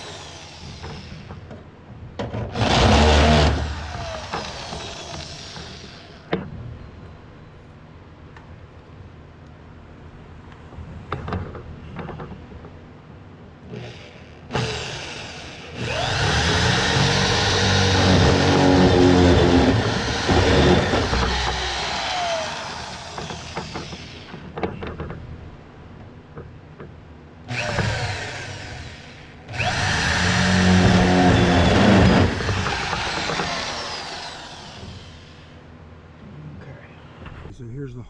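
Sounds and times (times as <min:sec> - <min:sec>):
power drill boring through wall: 0:00.0 - 0:01.4, 0:02.5 - 0:06.3, 0:13.7 - 0:24.4, 0:27.5 - 0:35.6.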